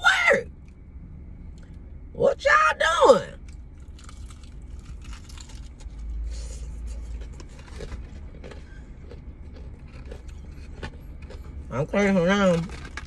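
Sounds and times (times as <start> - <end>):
deep engine rumble: 0.0 - 13.0
person chewing food: 3.4 - 11.7.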